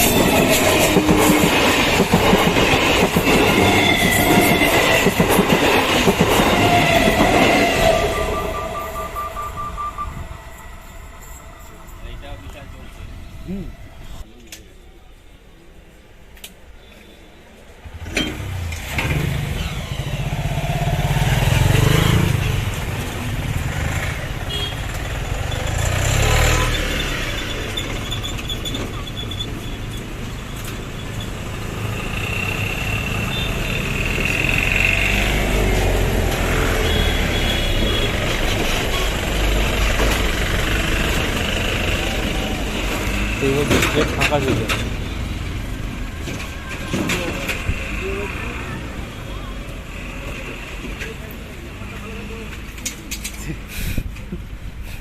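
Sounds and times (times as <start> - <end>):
vehicle engines passing: 17.8 - 55.0.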